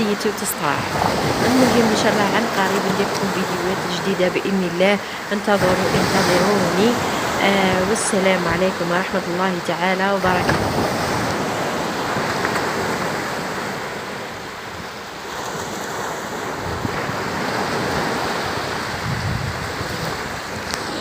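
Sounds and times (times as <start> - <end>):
wind on microphone: 0.0 - 4.5, 10.2 - 13.9, 15.4 - 21.0
sea waves breaking on shore: 0.0 - 21.0.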